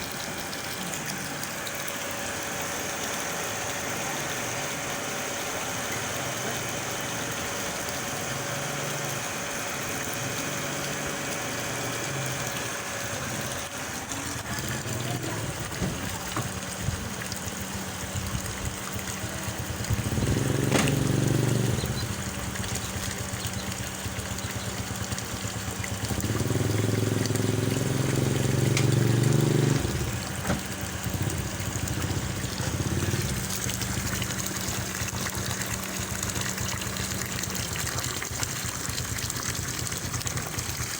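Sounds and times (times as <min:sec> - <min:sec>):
water moving through pump: 0:00.0 - 0:40.9
water pump humming: 0:00.0 - 0:40.9.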